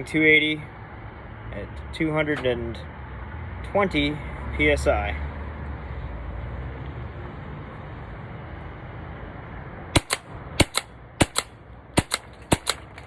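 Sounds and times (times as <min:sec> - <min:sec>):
paintball marker firing: 0:10.0 - 0:13.0.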